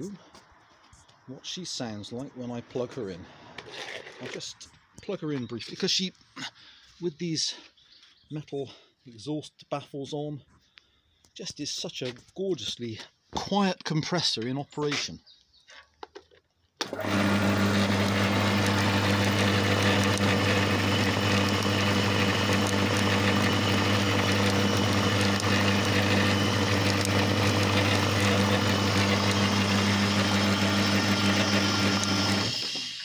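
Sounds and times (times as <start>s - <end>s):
air compressor humming: 16.8s - 33.0s
compressor running down: 16.8s - 33.0s.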